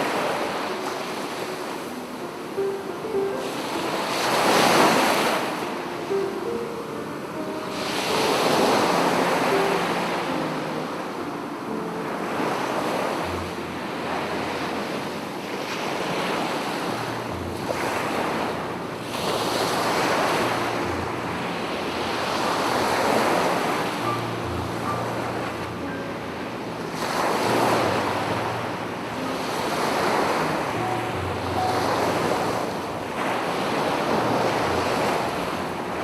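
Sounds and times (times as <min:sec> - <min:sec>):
sea waves breaking on beach: 0:00.0 - 0:36.0.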